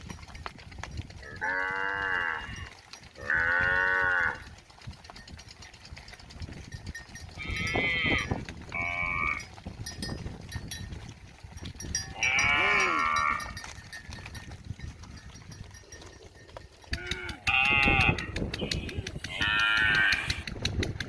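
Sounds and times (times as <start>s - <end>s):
cow mooing: 1.3s - 4.5s, 7.4s - 9.5s, 12.1s - 13.6s, 16.9s - 18.3s.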